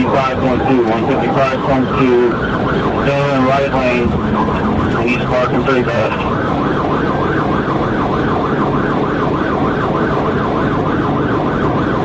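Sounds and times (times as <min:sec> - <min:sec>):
police siren yelping: 0:00.0 - 0:12.0
road and engine noise: 0:00.0 - 0:12.0.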